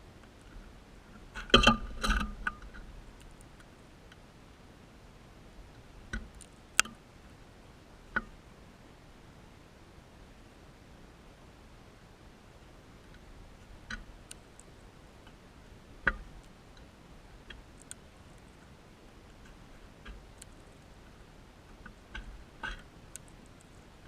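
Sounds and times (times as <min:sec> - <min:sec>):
faint steady hiss: 0:00.0 - 0:24.0
small clicks and taps: 0:17.5 - 0:18.7, 0:19.3 - 0:20.9, 0:21.7 - 0:23.8.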